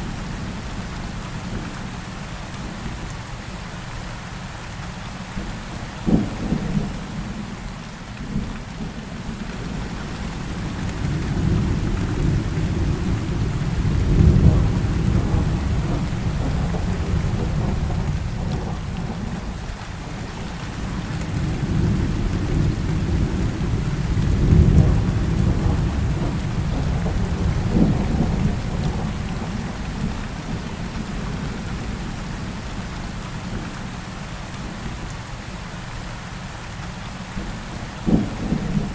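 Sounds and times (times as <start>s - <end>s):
heavy rain falling: 0.0s - 38.9s
thunder crack and rumbles: 5.4s - 7.6s, 8.2s - 33.7s, 37.4s - 38.9s.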